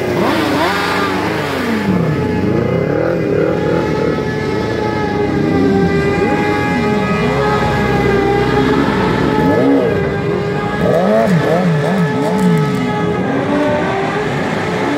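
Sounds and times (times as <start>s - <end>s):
engine at steady revs: 0.0s - 14.9s
motorcycle engines revving: 0.0s - 14.9s.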